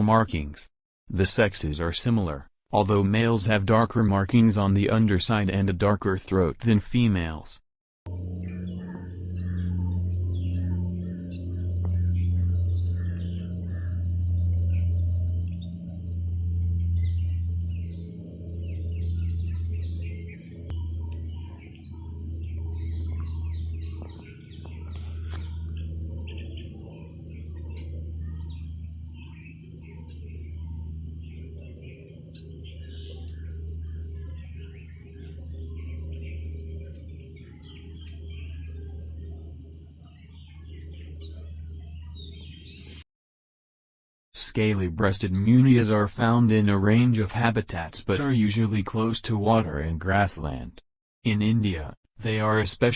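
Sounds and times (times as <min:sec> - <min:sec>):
low rumble: 0:08.1 - 0:31.9
small birds chirping: 0:08.1 - 0:43.0.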